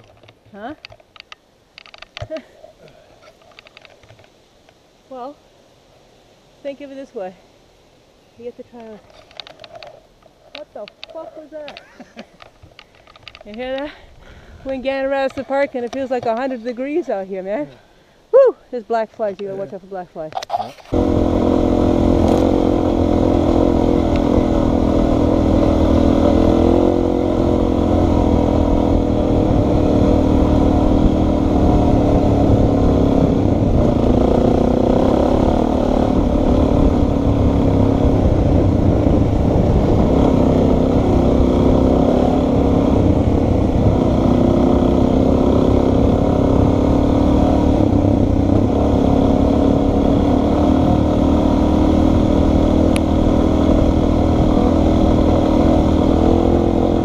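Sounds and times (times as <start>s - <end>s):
wind noise from riding: 20.3s - 57.0s
motorcycle engine running: 20.9s - 57.0s.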